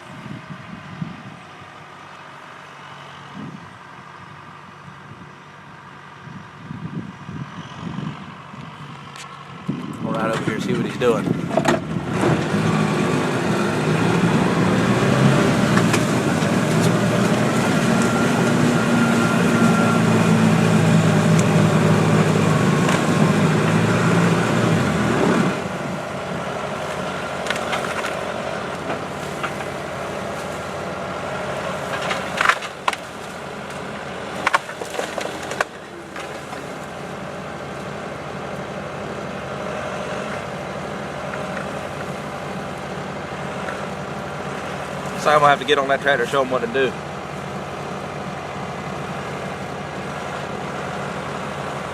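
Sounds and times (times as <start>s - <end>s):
tractor diesel engine under load: 0.0s - 51.9s
wood splintering cracks: 26.7s - 30.8s, 31.6s - 37.1s.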